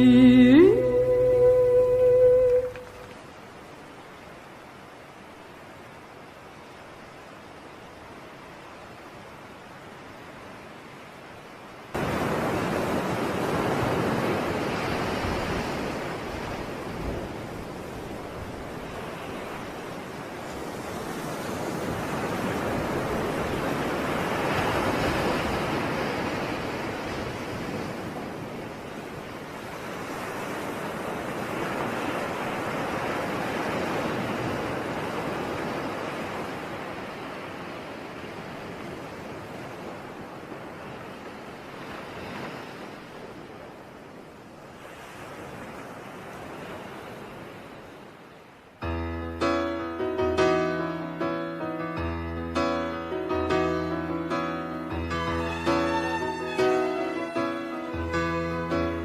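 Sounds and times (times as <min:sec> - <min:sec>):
rushing surf-like noise: 0:00.0 - 0:29.0, 0:48.8 - 0:59.0.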